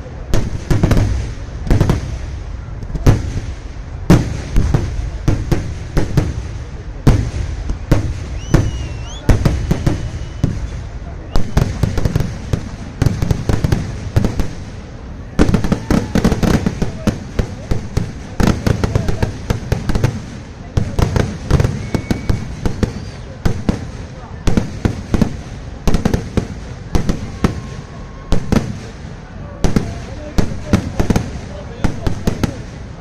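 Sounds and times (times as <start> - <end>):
fireworks bangs and cracks: 0.0 - 33.0.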